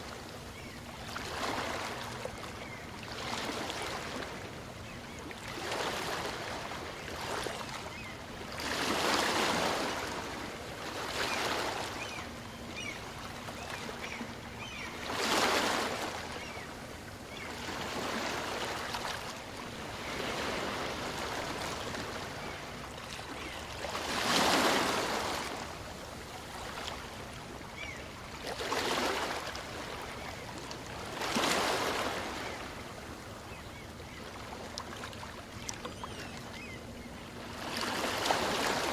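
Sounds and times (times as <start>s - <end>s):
small waves breaking on beach: 8.6s - 12.2s, 31.0s - 33.3s.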